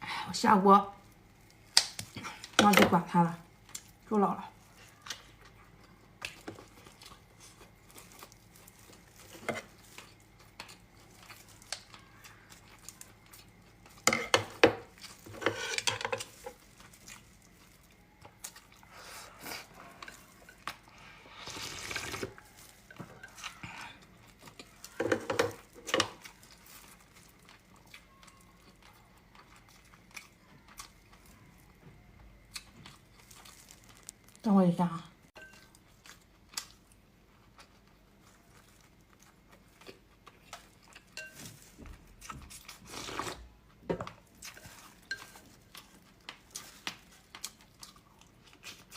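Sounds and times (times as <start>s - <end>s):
utensils clinking against a bowl: 40.9s - 41.7s, 44.6s - 45.6s.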